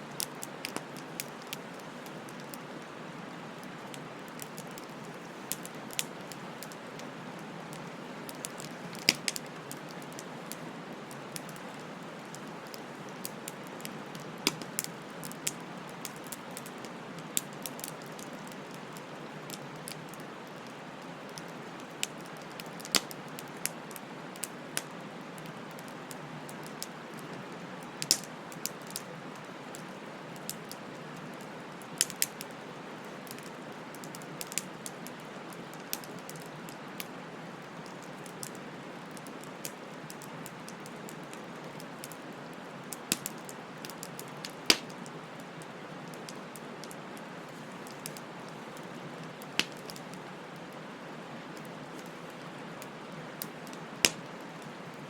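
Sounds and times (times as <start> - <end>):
wood fire hissing: 0.1 - 55.0
wood crackling and popping: 0.2 - 2.7, 3.6 - 7.1, 7.7 - 24.9, 25.5 - 31.2, 43.0 - 50.3, 51.5 - 55.0.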